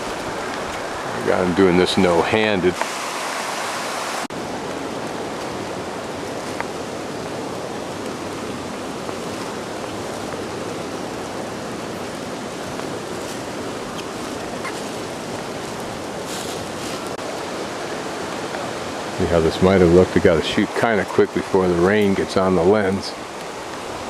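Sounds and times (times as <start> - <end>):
flowing river water: 0.0 - 24.0.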